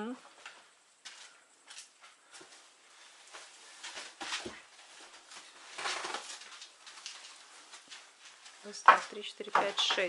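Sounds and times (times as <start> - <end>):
plastic-wrapped packs rustling: 3.4 - 10.0.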